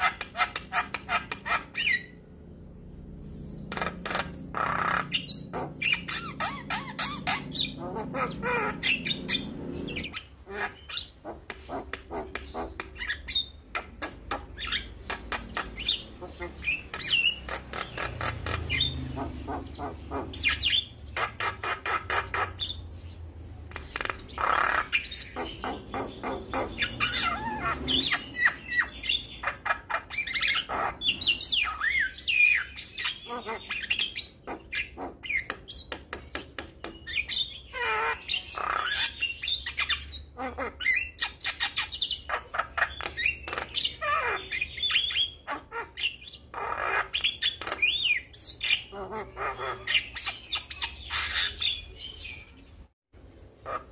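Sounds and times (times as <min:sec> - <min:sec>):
bird singing with clicks and whistles: 0:03.3 - 0:22.8, 0:23.7 - 0:52.6.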